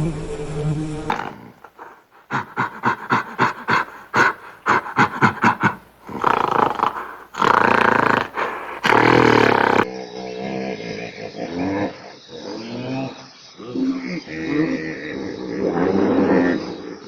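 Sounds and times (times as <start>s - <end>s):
animal huffing rhythmically: 1.1s - 9.9s
animal rough calls: 1.1s - 9.9s.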